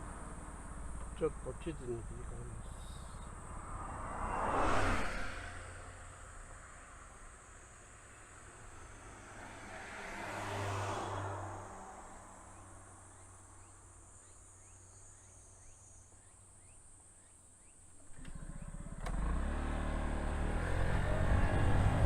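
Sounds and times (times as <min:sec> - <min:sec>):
low engine rumble: 0:00.0 - 0:04.4
vehicle engine: 0:00.0 - 0:14.2, 0:17.8 - 0:22.0
outdoor background noise: 0:00.0 - 0:22.0.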